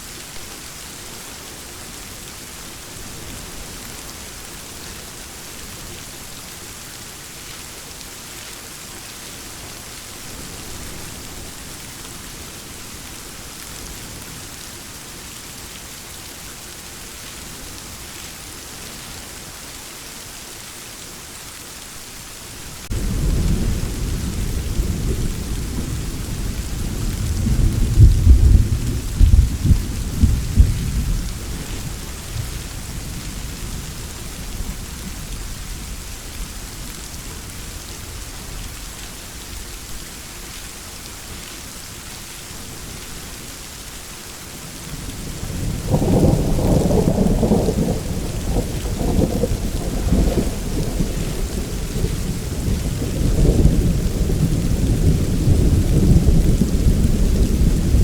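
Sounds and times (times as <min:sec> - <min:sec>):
steady rain falling: 0:00.0 - 0:58.0
thunder clap and rumble: 0:22.9 - 0:36.4, 0:45.2 - 0:58.0.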